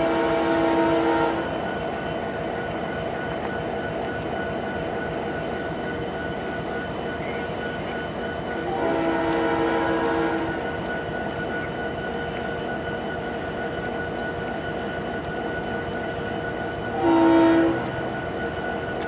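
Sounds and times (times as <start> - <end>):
diesel locomotive horn: 0.0 - 1.8, 8.4 - 11.0, 16.9 - 18.3
passing train rumble: 0.0 - 19.0.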